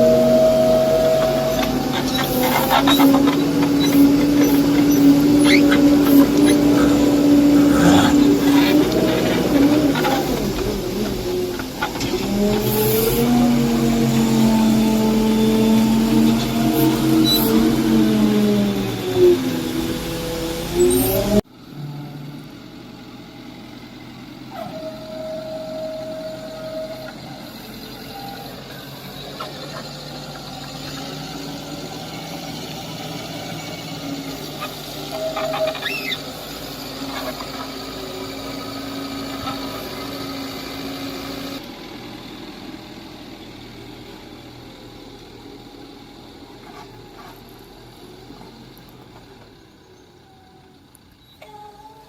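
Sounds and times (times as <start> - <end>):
held machine tone: 0.0 - 8.5
heavy diesel machinery running: 0.0 - 51.4.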